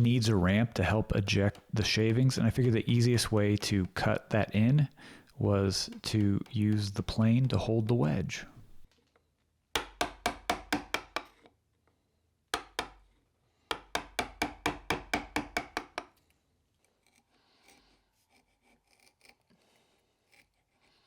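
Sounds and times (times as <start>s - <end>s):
hand tool cutting wood: 0.0s - 8.9s.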